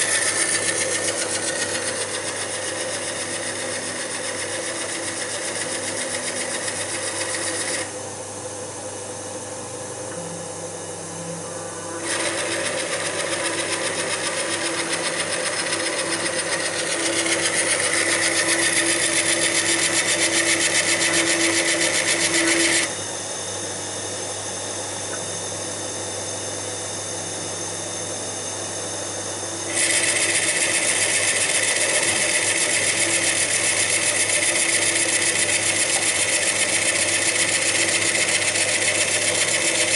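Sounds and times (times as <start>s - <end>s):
lathe motor humming: 0.0s - 8.0s, 9.5s - 26.3s, 27.0s - 39.9s
tool cutting wood scraping hiss: 12.0s - 22.9s.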